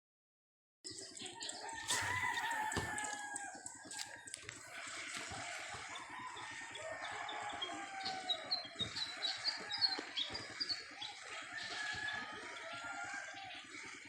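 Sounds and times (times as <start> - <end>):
rooster crowing: 1.6 - 4.1, 5.2 - 10.2, 11.4 - 13.6.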